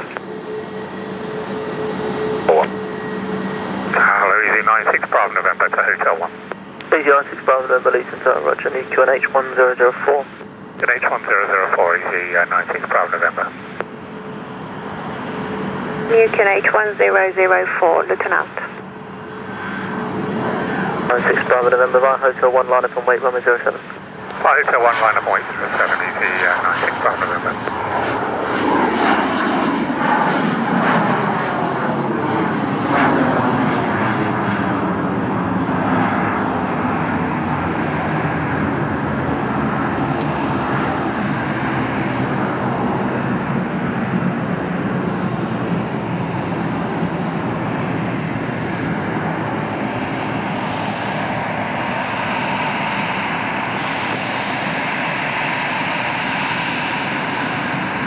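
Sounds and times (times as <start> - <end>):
jet engines roaring: 0.0 - 58.0.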